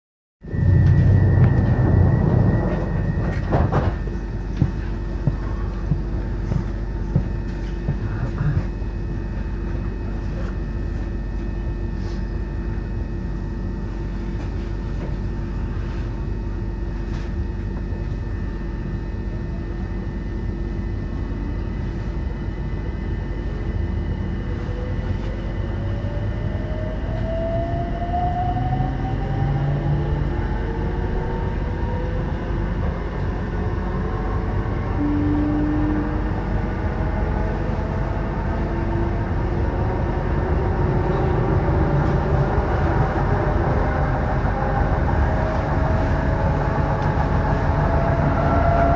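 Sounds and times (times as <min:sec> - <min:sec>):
traction motor whine: 0:00.4 - 0:04.4, 0:24.7 - 0:48.9
train steady hum: 0:00.4 - 0:48.9.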